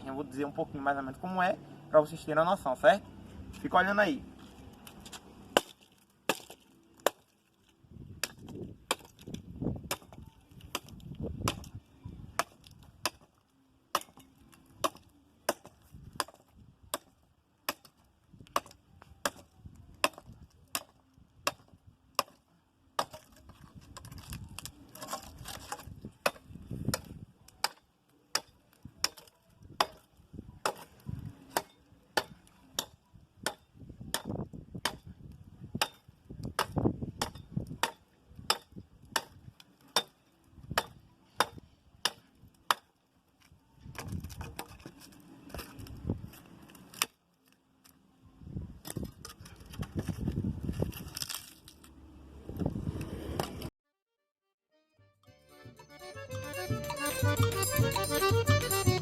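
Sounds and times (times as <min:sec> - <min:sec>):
axe chopping wood: 0:04.8 - 0:07.4, 0:08.1 - 0:43.0, 0:43.8 - 0:44.9.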